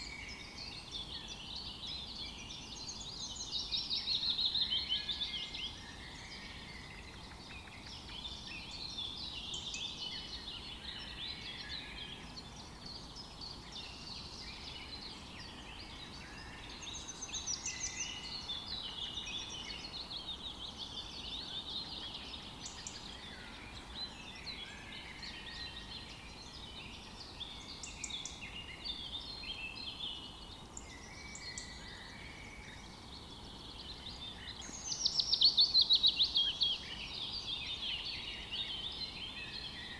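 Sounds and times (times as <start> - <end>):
birds singing: 0.0 - 39.9
faint outdoor hiss: 0.0 - 39.9.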